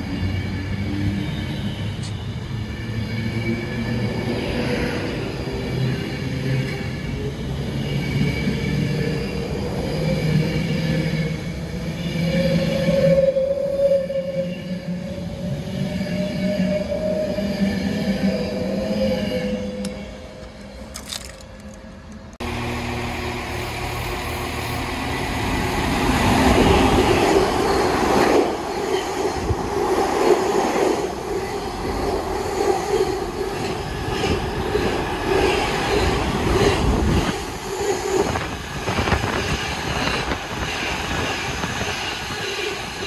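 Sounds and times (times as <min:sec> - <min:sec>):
wheel-on-rail noise with clicks: 0:19.8 - 0:22.4.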